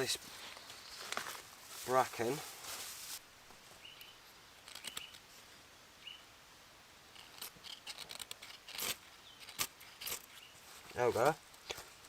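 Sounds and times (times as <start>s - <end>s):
dry bracken crackling and scraping: 0.0s - 3.6s, 7.1s - 12.0s.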